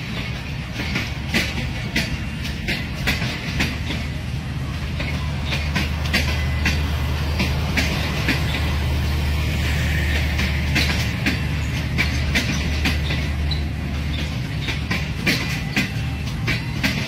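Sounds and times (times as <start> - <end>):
wheels clacking over rail joints: 0.0 - 17.0
steady low rumble: 4.1 - 15.3.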